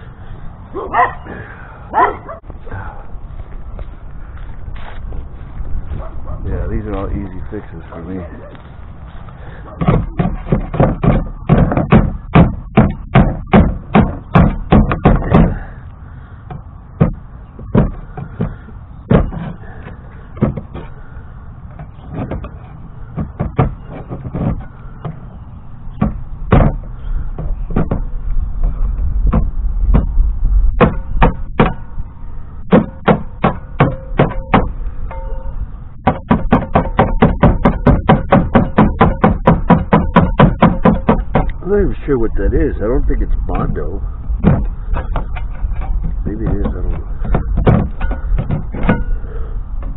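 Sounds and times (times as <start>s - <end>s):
sharp knocks and taps: 9.8s - 15.5s, 16.5s - 19.5s, 26.0s - 28.1s, 36.0s - 41.6s, 44.4s - 49.1s.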